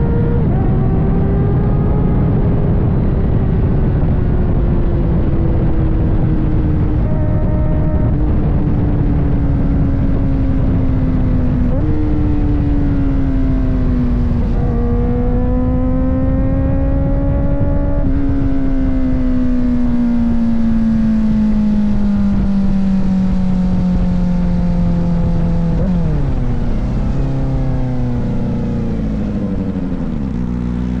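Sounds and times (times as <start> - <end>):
low wind rumble: 0.0 - 31.0
motorcycle engine running: 0.0 - 31.0.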